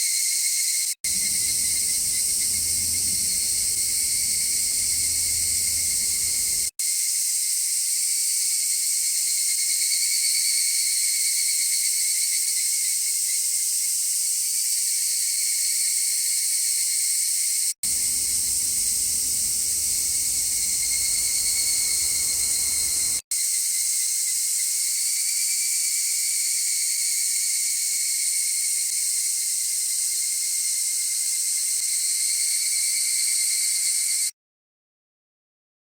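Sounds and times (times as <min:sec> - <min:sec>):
cicadas buzzing: 0:01.1 - 0:06.7, 0:17.8 - 0:25.5
distant traffic rumble: 0:01.1 - 0:06.7, 0:17.8 - 0:23.2.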